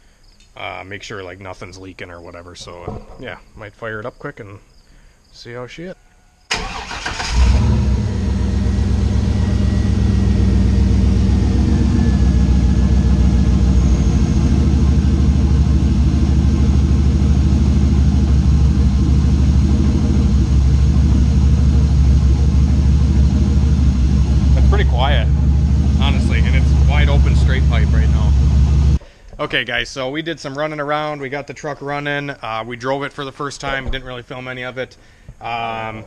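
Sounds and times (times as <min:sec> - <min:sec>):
engine starter cranking: 0:06.5 - 0:13.8
engine idling: 0:06.5 - 0:29.0.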